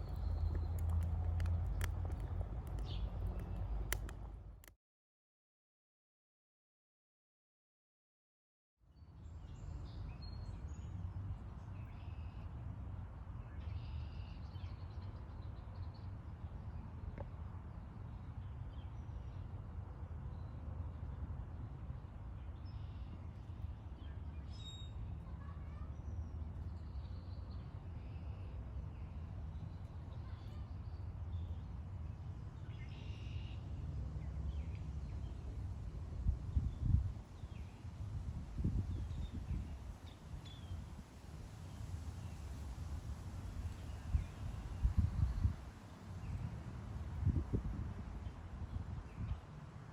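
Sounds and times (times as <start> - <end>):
small birds chirping: 0.0 - 4.3
steady low rumble: 0.0 - 4.7.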